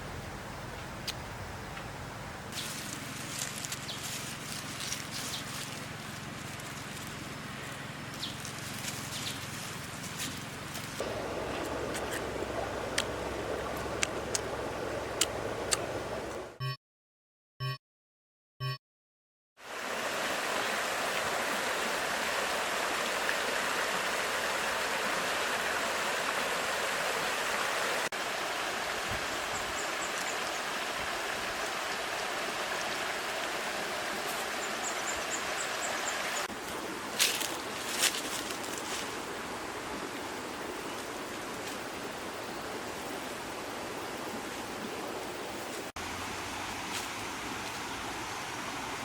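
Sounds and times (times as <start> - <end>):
outdoor rushing noise: 11.0 - 16.6.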